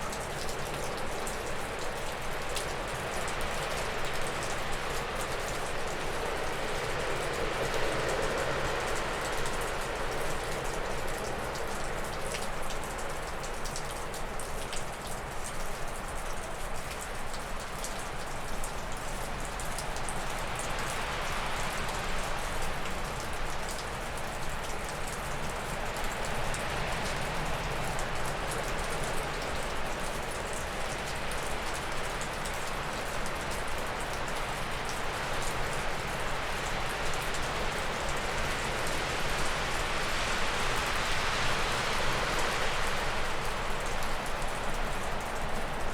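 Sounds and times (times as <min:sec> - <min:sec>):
water dripping off roof: 0:00.0 - 0:45.9
gusty wind through trees: 0:34.4 - 0:45.9.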